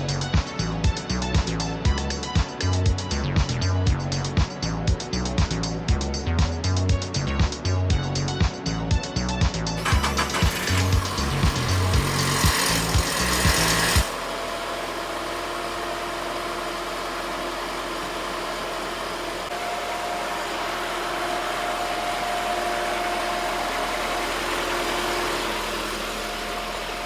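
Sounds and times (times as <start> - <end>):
music with a beat: 0.0 - 9.8
pickup engine idling: 9.8 - 27.0
faint steady whine: 14.1 - 27.0.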